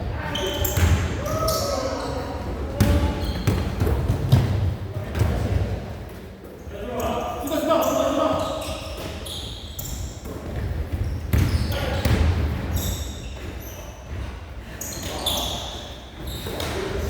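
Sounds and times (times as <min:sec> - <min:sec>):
shoes squeaking: 0:00.2 - 0:03.9, 0:06.4 - 0:17.0
basketball bouncing on floor: 0:02.8 - 0:05.6.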